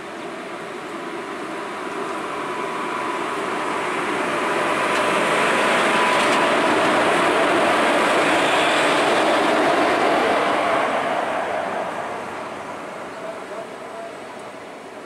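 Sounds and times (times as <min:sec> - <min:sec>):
train wheels running past: 0:00.0 - 0:15.0.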